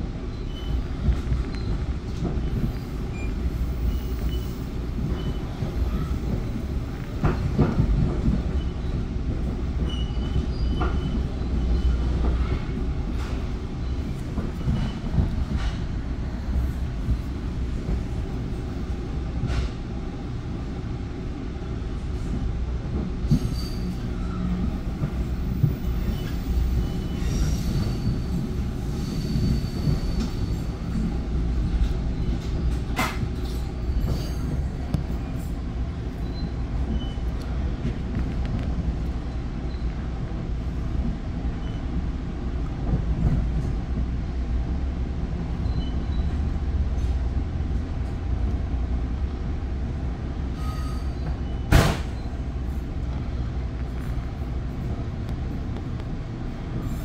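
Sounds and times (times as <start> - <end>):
wheels rumbling on track: 0.0 - 57.0
faint high wheel squeal: 0.3 - 1.8, 2.4 - 6.6, 9.8 - 12.7, 23.3 - 24.7, 25.7 - 30.8, 35.4 - 37.3, 41.6 - 41.9, 45.6 - 47.2, 50.6 - 52.4.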